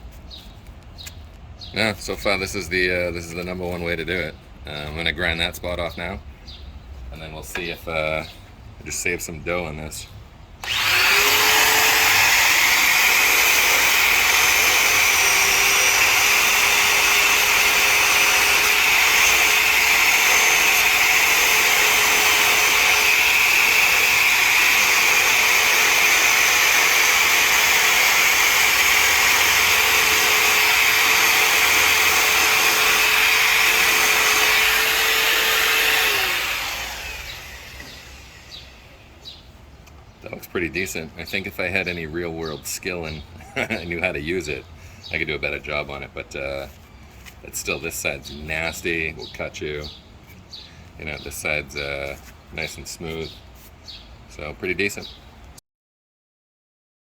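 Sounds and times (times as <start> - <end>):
electric grinder grinding plastic: 10.6 - 38.8.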